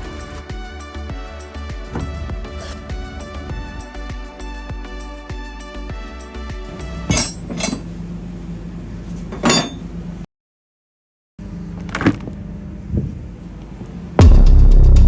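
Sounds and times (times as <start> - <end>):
low machinery hum: 0.0 - 4.6, 6.6 - 10.3, 11.4 - 14.7
metallic clinks and knocks: 7.0 - 7.9, 9.3 - 9.9.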